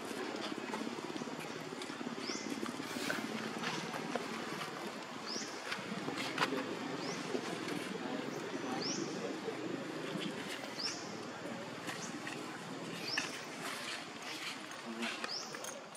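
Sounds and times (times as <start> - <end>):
low background noise: 0.0 - 15.9.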